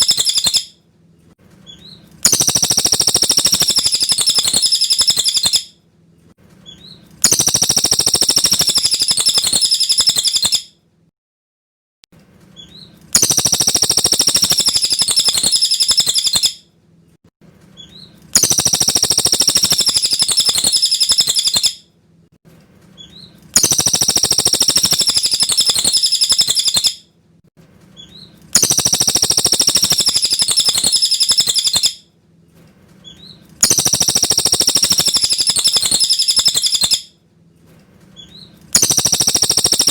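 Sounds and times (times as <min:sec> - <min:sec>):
bird singing rapid song: 0:00.0 - 0:00.7, 0:01.7 - 0:05.7, 0:06.7 - 0:10.6, 0:12.6 - 0:16.6, 0:17.8 - 0:21.8, 0:23.0 - 0:27.0, 0:28.0 - 0:32.0, 0:33.1 - 0:37.0, 0:38.2 - 0:39.9.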